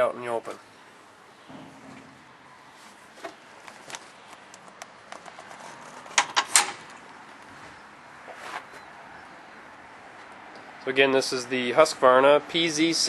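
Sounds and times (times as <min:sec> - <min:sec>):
sharp knocks clattering: 0:01.5 - 0:02.4
mower parts clicking and knocking: 0:03.2 - 0:07.0.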